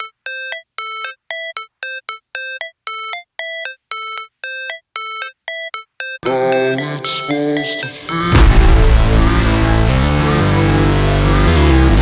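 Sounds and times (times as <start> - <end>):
buzzy synthesizer two-note figure: 8.3 - 12.0.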